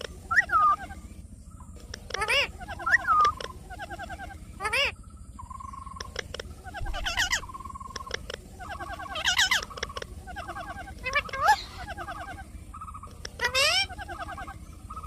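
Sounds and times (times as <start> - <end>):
parrot chirping and whistling: 0.2 - 1.0, 2.0 - 4.9, 6.0 - 12.4
parrot calls sweeping upward: 8.6 - 12.4.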